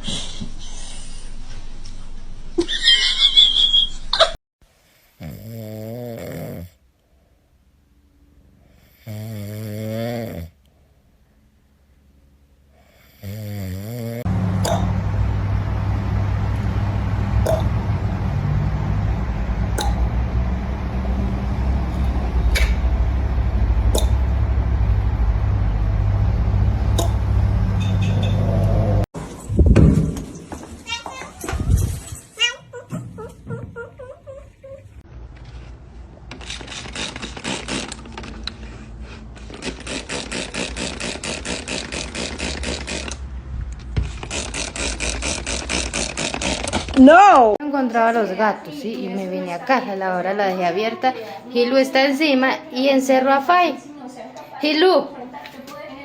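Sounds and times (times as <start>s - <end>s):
long low snores: 5.0s - 6.8s, 8.6s - 10.6s, 12.8s - 14.8s
low mechanical hum: 14.2s - 30.2s.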